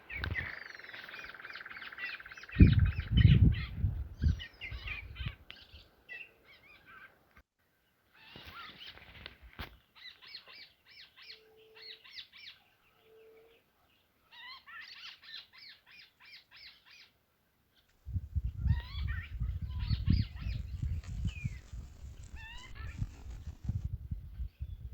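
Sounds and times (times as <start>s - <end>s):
bird chirping rapidly: 18.4s - 23.8s.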